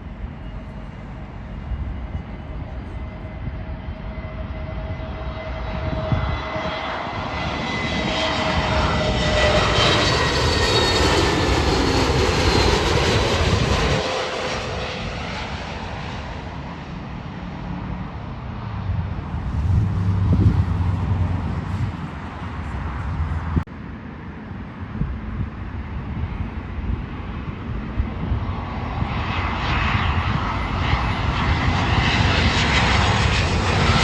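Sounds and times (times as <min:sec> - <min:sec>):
jet airliner passing overhead: 0:00.0 - 0:34.0.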